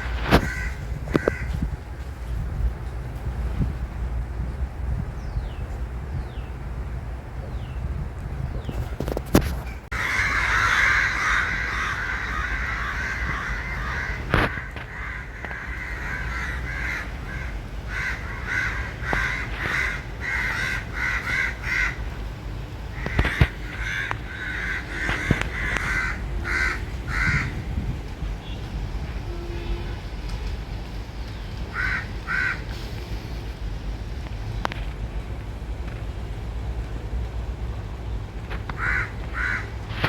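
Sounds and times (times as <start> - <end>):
crows cawing: 0.2 - 1.6, 9.9 - 22.1, 23.0 - 27.6, 31.7 - 32.7, 38.7 - 39.8.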